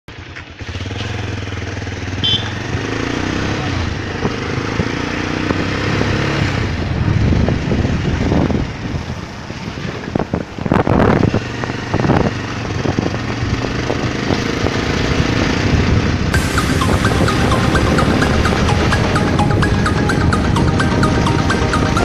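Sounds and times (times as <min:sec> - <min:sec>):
motorcycle engine running: 0:00.1 - 0:09.4.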